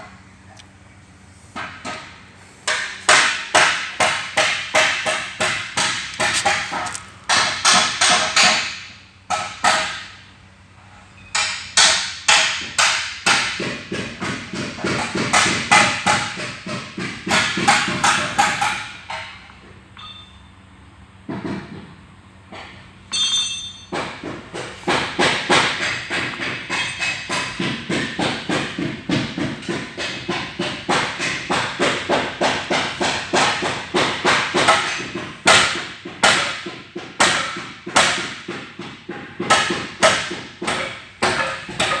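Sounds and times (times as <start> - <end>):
rapid sharp knocks: 2.6 - 10.0, 23.9 - 42.0.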